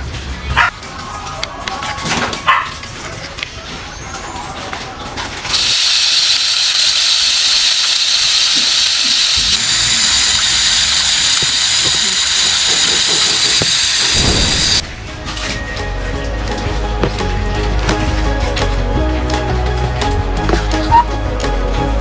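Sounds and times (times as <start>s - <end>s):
loud steady hiss: 5.4s - 15.0s.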